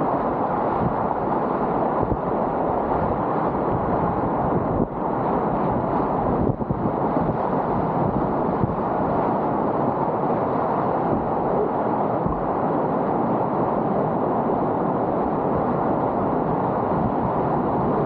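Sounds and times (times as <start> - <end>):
whitewater river rushing: 0.0 - 18.0.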